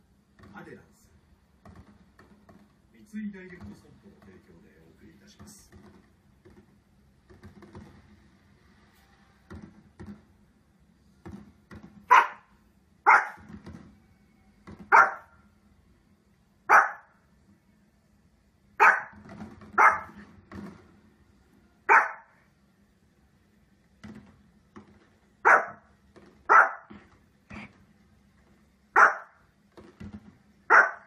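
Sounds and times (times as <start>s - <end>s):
small dog barking: 12.1s - 13.5s, 14.9s - 15.3s, 16.7s - 17.1s, 18.8s - 19.2s, 19.8s - 20.2s, 21.9s - 22.4s, 25.4s - 25.9s, 26.5s - 26.9s, 29.0s - 29.4s, 30.7s - 31.0s.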